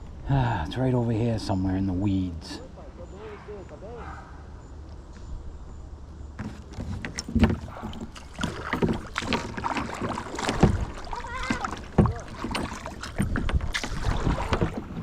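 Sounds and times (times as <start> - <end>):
water splashing around a kayak: 6.4 - 15.0.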